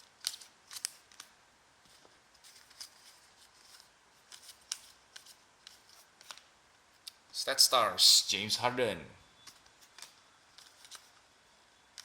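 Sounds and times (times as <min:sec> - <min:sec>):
cards clicking and sliding: 0:00.2 - 0:07.2.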